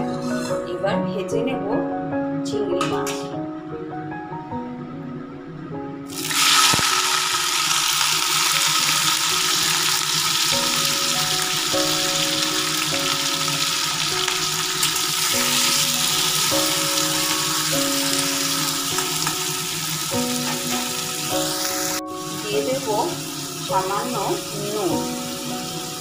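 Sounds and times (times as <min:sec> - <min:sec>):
prawns sizzling in hot oil: 0:06.1 - 0:26.0.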